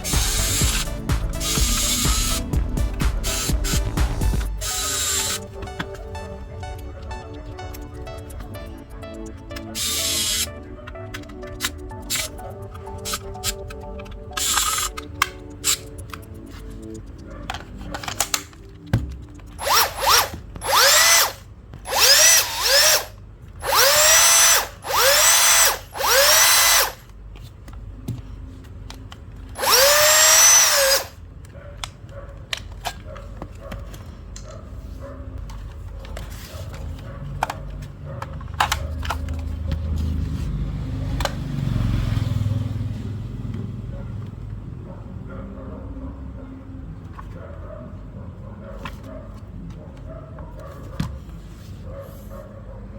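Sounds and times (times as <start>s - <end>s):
cordless drill motor whining: 0.0s - 2.5s, 3.2s - 6.0s, 9.6s - 10.5s, 19.5s - 27.0s, 29.6s - 31.2s
clicks and handling noise: 4.3s - 21.8s, 26.0s - 41.6s.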